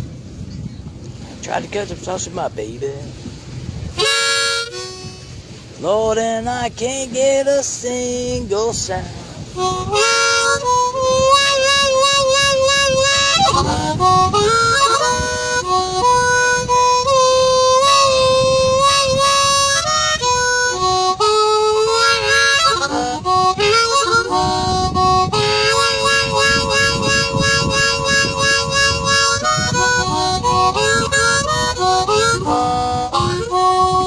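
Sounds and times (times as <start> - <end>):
blues harmonica solo: 3.9 - 5.7, 9.5 - 34.0.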